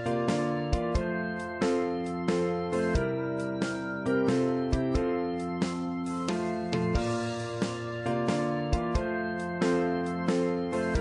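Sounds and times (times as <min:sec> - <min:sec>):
instrumental background music: 0:00.0 - 0:11.0.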